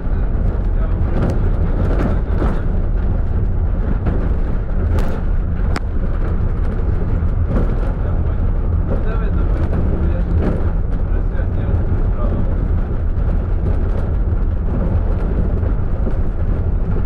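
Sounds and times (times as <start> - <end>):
minibus engine rumbling: 0.0 - 17.0.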